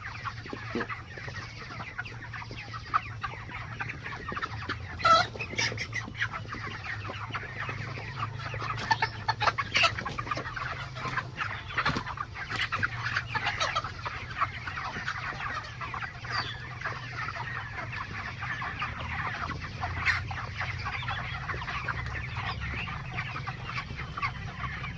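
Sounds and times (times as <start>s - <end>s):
chickens clucking: 0.0s - 24.9s.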